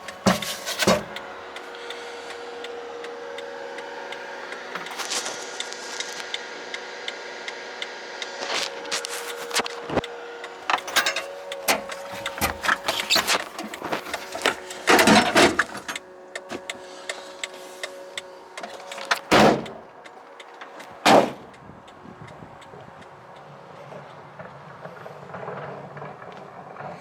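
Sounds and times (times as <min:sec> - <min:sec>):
machinery whine with clicking: 0:00.0 - 0:27.0
loud metal clanks: 0:00.2 - 0:01.2, 0:10.7 - 0:16.7, 0:18.7 - 0:19.8, 0:21.0 - 0:21.5.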